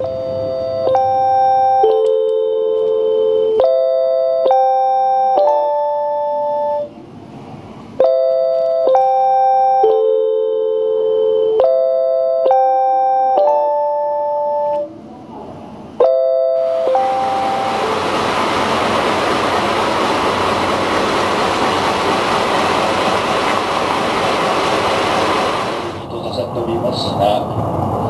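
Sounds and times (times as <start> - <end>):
electronic bell-like chime: 16.0 - 17.9
train noise rushing: 16.6 - 28.0.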